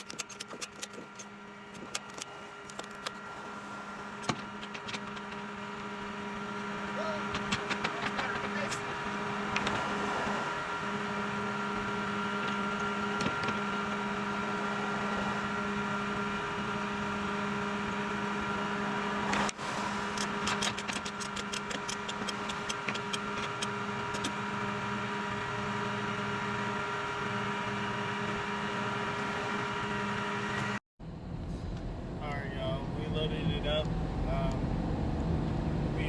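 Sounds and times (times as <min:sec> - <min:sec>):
rapid clicking: 0:00.0 - 0:03.2, 0:20.2 - 0:24.3.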